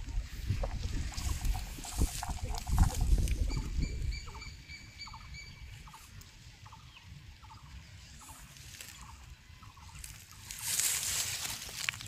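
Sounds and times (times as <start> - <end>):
bird calling: 1.2 - 10.9.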